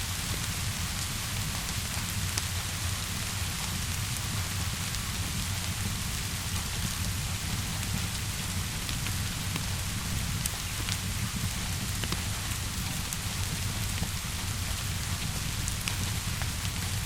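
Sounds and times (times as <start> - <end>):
steady rainfall: 0.0 - 17.0
wood fire crackling: 0.1 - 17.0.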